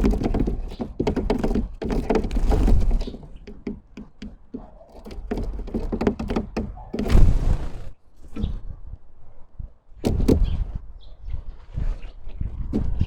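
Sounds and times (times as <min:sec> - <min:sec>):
birds pecking on feeder: 0:00.0 - 0:07.9.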